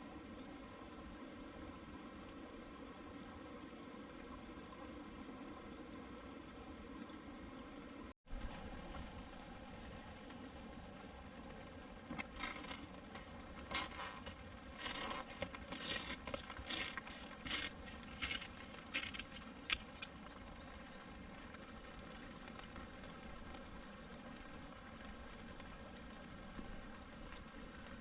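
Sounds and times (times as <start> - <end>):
stream rushing: 12.0 - 25.4
scraping and rustling: 12.1 - 20.1.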